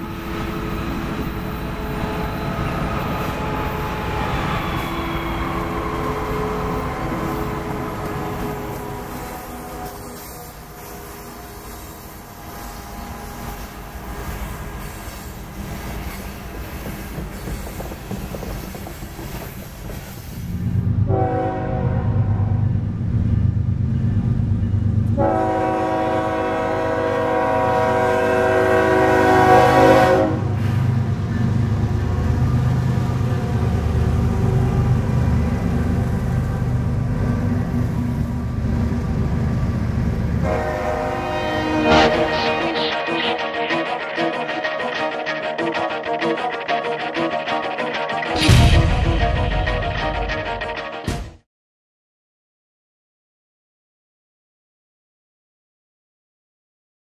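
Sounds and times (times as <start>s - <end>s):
freight train wheels on rails: 0.0s - 21.5s, 22.6s - 42.6s
diesel locomotive engine rumble: 0.0s - 43.0s
train air horn blasts: 4.8s - 15.3s, 21.1s - 22.6s, 25.2s - 30.7s, 40.4s - 45.3s.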